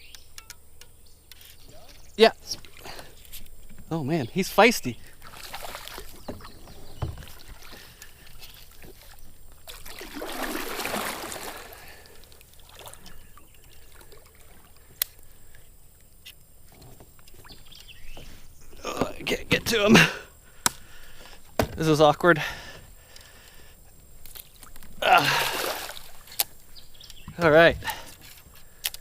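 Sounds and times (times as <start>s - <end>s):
water splashing: 2.3s - 15.4s, 24.3s - 26.7s
knocks and clicks against boat: 5.9s - 9.3s, 21.5s - 22.0s, 26.4s - 29.0s.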